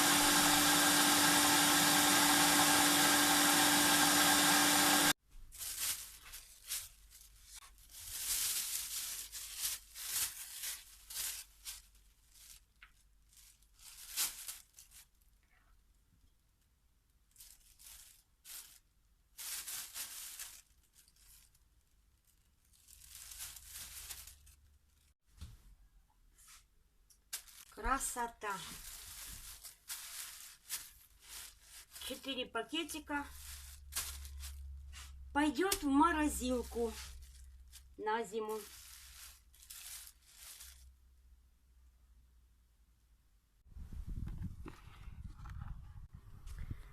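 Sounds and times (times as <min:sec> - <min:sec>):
food processor motor humming: 0:00.0 - 0:05.2
plastic bags rustling: 0:05.1 - 0:15.6, 0:17.2 - 0:25.2, 0:27.2 - 0:41.1.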